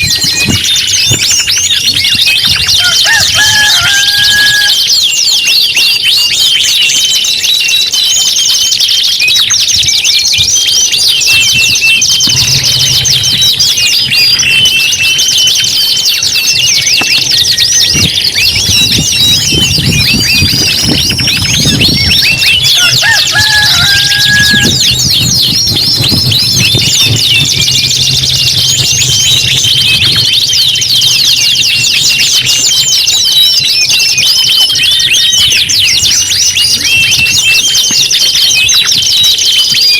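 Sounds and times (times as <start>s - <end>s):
canaries trilling and chirping: 0.0s - 39.9s.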